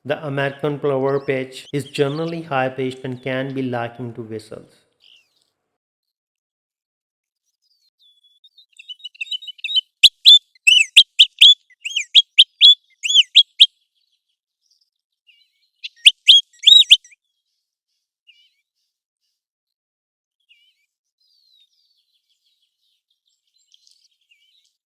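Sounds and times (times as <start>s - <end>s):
bird whistled calls: 8.8s - 13.7s, 15.8s - 17.1s.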